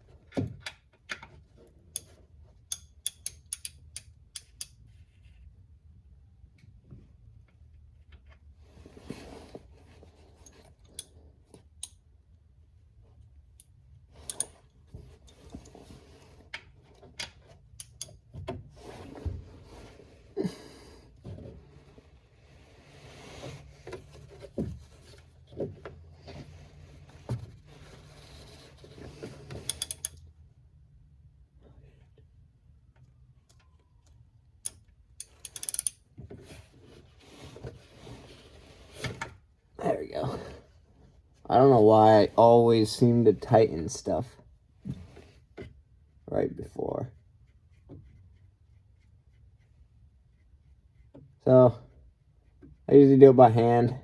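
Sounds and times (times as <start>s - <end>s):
wrench clicking on metal: 2.7s - 4.8s, 13.6s - 14.5s, 17.8s - 18.2s, 29.6s - 30.2s, 34.6s - 36.0s
rustling of handling: 21.2s - 30.1s, 36.2s - 39.5s.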